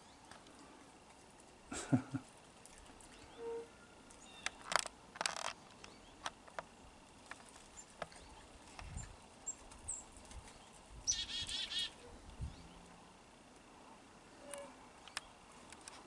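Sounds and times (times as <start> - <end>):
small songbirds chirping: 4.1 - 4.6, 5.8 - 13.0.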